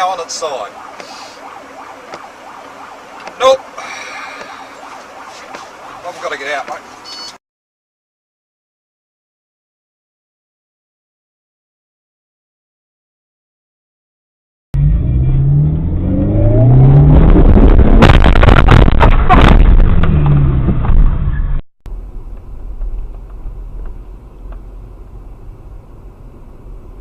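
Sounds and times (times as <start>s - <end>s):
road noise: 0.0s - 7.4s, 14.8s - 27.0s
sharp cracks or knocks: 18.0s - 21.0s.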